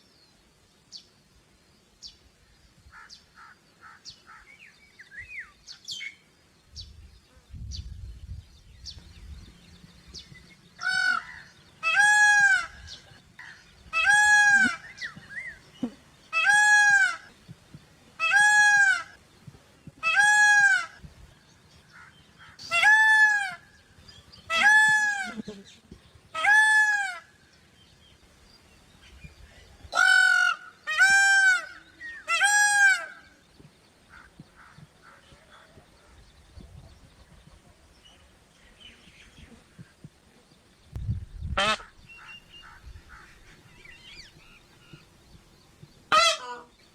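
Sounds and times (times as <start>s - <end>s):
peafowl honking call: 10.8s - 17.4s, 18.2s - 19.2s, 20.0s - 21.0s, 21.9s - 23.8s, 24.4s - 25.5s, 26.3s - 27.4s, 29.9s - 33.4s, 41.5s - 45.0s, 46.1s - 46.9s.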